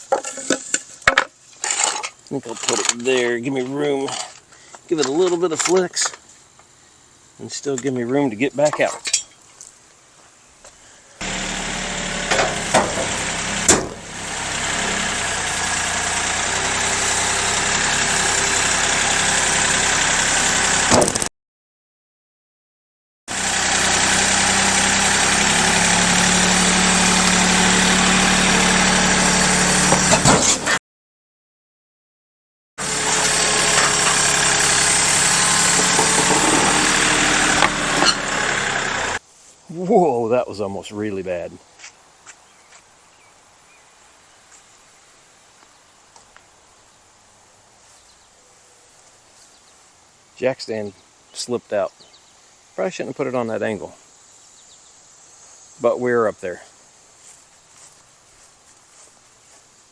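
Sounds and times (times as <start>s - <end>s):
diesel tractor engine running: 11.2s - 21.0s, 23.3s - 30.7s, 32.8s - 39.2s
sharp knocks: 12.2s - 14.1s, 35.7s - 36.9s.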